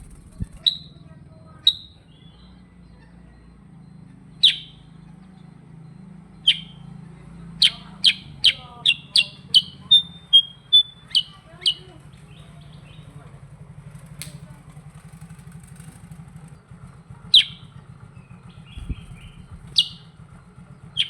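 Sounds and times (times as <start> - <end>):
faint low hum: 0.0 - 4.3, 18.6 - 20.1
bird whistling song: 0.0 - 6.9, 7.6 - 13.1, 17.3 - 21.0.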